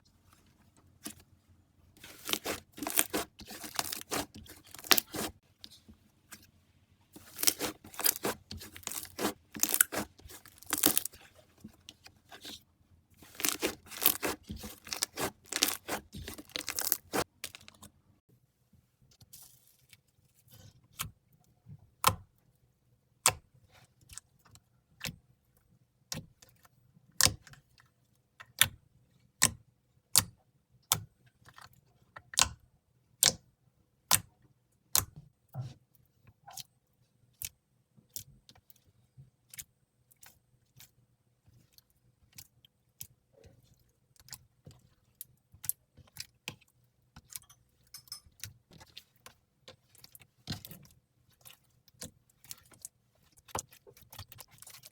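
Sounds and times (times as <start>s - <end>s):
faint slime crackles: 2.0s - 6.5s, 7.2s - 12.6s, 13.2s - 17.9s, 48.7s - 54.9s.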